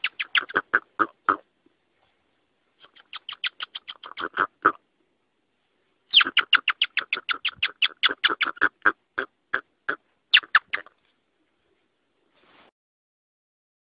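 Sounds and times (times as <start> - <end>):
rock hyrax calling: 0.0 - 1.5, 2.8 - 4.8, 6.1 - 10.9.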